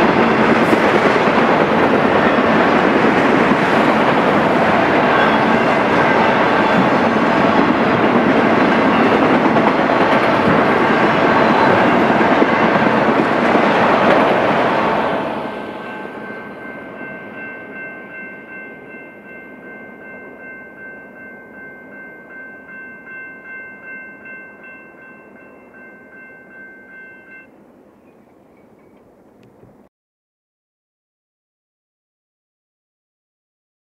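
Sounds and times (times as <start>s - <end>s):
freight train rumbling clatter: 0.0s - 17.2s
crossing warning bell ringing: 1.4s - 13.8s, 15.4s - 27.6s.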